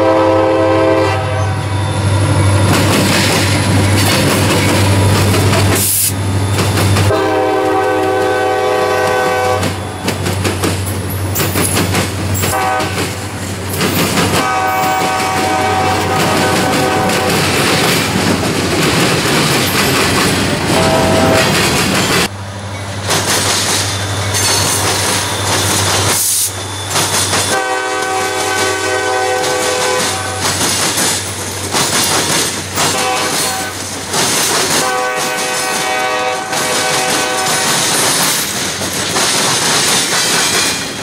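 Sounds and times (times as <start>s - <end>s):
multi-note train horn: 0.0s - 1.8s, 7.1s - 10.0s, 12.5s - 13.2s, 14.3s - 17.5s, 20.6s - 21.6s, 27.5s - 30.6s, 32.8s - 33.8s, 34.7s - 37.8s
diesel locomotives rumbling: 0.0s - 41.0s
wheels clicking over rail joints: 2.6s - 7.2s, 9.0s - 41.0s.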